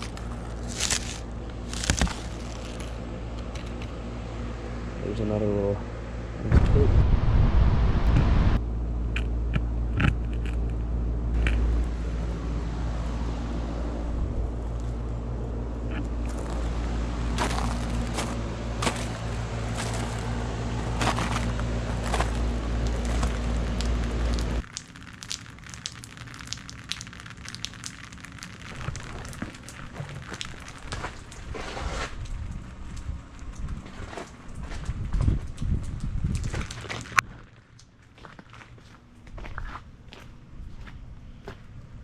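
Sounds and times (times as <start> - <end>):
ice crackling and crunching: 0.0 - 3.9, 15.9 - 39.5
steady low hum: 0.0 - 42.0.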